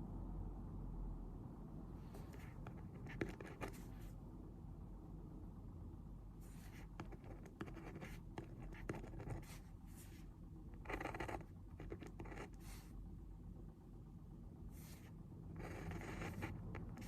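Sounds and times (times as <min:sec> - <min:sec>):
pen writing on paper: 0:02.2 - 0:03.9, 0:06.5 - 0:10.2, 0:10.8 - 0:12.8, 0:14.8 - 0:17.0.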